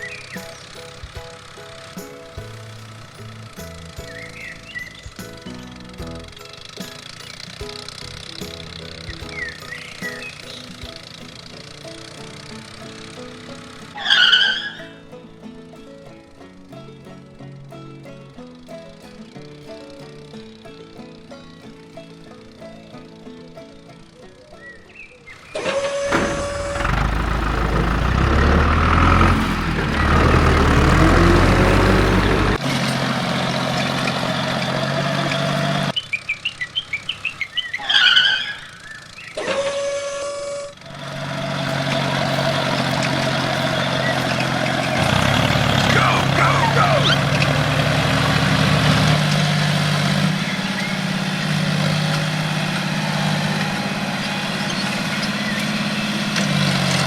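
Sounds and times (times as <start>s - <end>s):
high chirps: 0.0s - 11.2s
tractor engine running: 0.0s - 57.0s.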